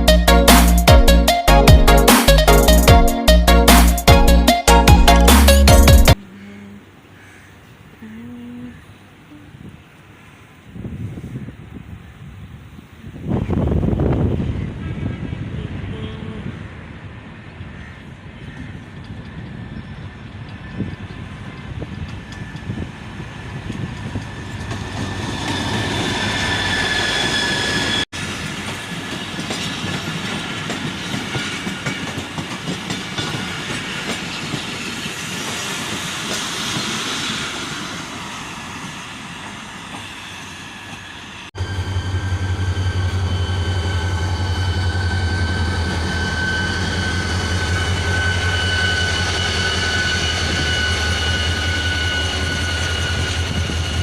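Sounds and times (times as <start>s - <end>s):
passenger train running: 0.0s - 7.1s, 8.8s - 54.0s
thin wheel squeals: 41.7s - 54.0s.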